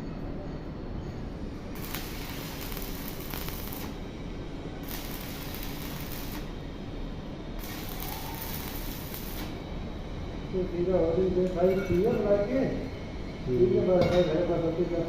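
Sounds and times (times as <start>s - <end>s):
electric arc welding hissing: 1.7s - 4.2s, 4.8s - 6.8s, 7.5s - 9.7s.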